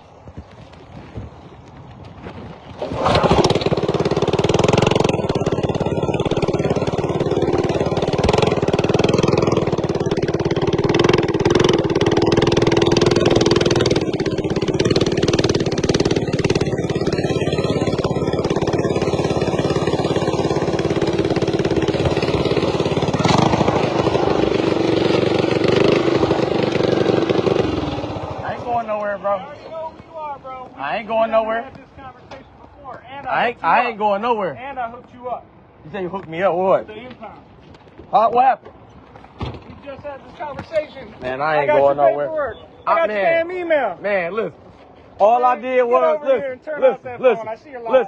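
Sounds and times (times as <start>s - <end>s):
small motorbike engine running: 2.8s - 28.9s.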